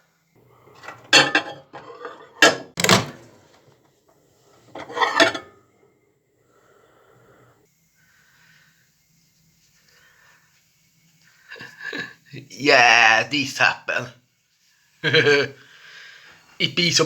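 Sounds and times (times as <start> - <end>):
kitchen items clattering: 0.4 - 3.8, 4.5 - 5.6.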